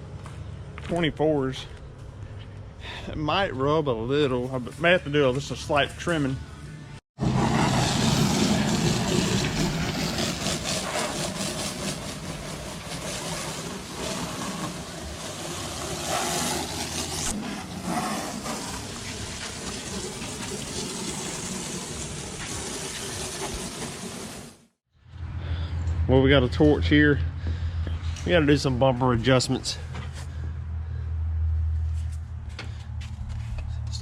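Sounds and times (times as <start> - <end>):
pressure washer spraying water: 7.3 - 24.6.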